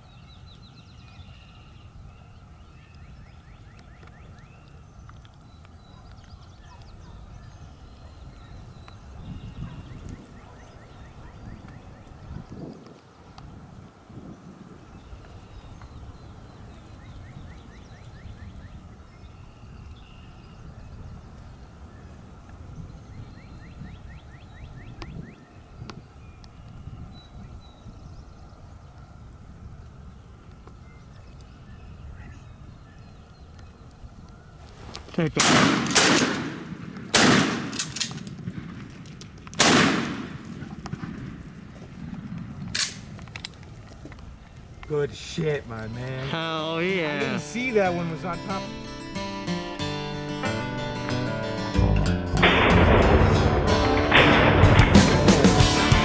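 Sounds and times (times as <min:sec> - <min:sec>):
wind rumbling on microphone: 0:00.0 - 0:46.3
shotgun blasts with rolling echo: 0:35.4 - 0:43.1, 0:52.4 - 0:56.0
faint sharp crack: 0:42.7 - 0:44.2.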